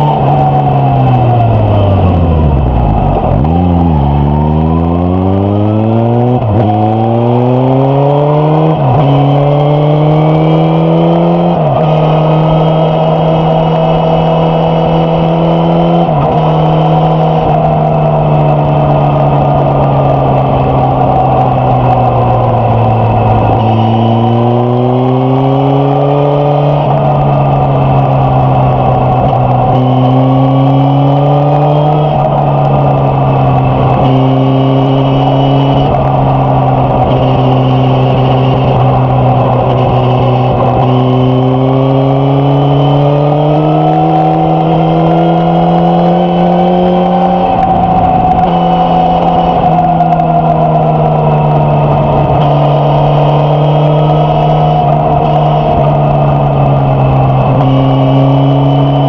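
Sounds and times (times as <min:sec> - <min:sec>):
motorcycle engine revving: 0:00.0 - 0:59.0
wind whoosh: 0:26.8 - 0:57.6.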